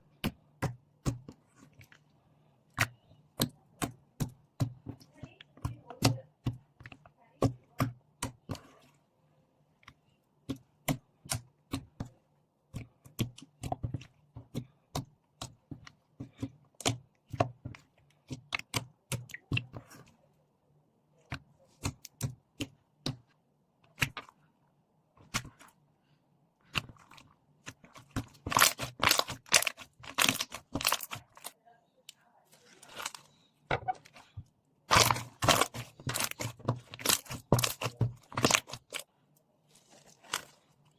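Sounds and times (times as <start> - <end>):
slime squished by hand: 26.6 - 31.6, 32.5 - 40.9.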